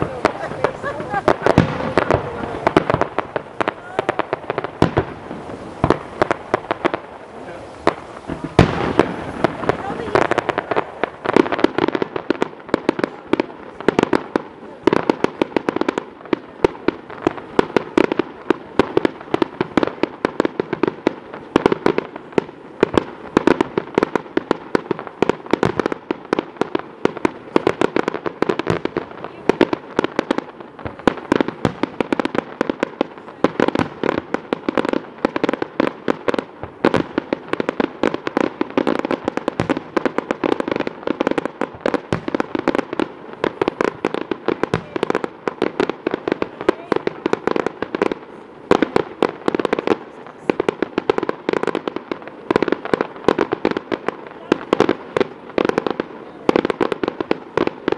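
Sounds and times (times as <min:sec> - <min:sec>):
fireworks bangs and crackling: 0:00.0 - 0:57.9.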